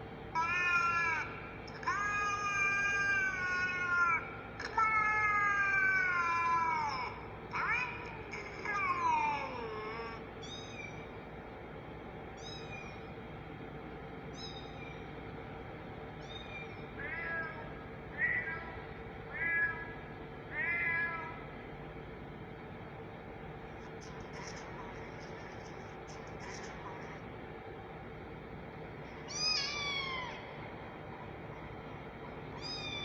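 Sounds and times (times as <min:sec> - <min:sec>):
cat meowing: 0:00.4 - 0:01.2, 0:01.8 - 0:11.0, 0:20.5 - 0:21.4, 0:29.3 - 0:30.5, 0:32.6 - 0:33.0.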